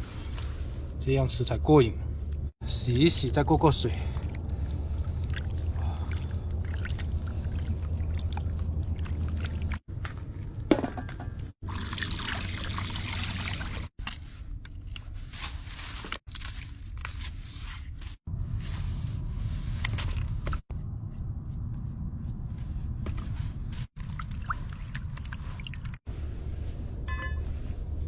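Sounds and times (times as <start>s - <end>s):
water pouring and splashing: 4.0s - 10.2s, 11.6s - 14.0s, 23.8s - 26.1s.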